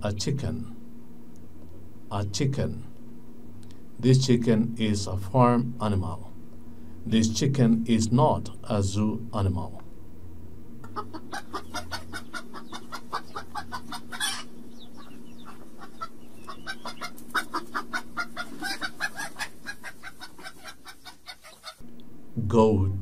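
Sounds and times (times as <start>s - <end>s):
chickens clucking: 10.8s - 21.8s.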